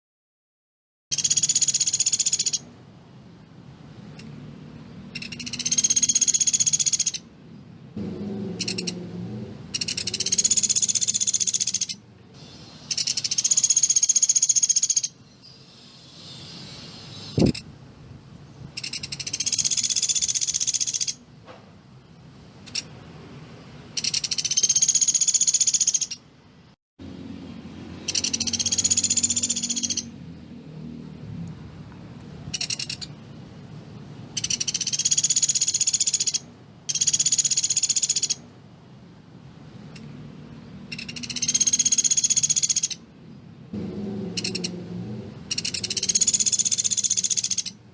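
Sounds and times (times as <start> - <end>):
woodpecker rattling trill: 1.1 - 2.7, 5.1 - 7.2, 8.5 - 9.0, 9.7 - 12.0, 12.9 - 15.2, 18.7 - 21.2, 24.0 - 26.2, 28.0 - 30.2, 32.5 - 33.2, 34.3 - 38.4, 40.9 - 43.0, 44.3 - 44.8, 45.5 - 47.8.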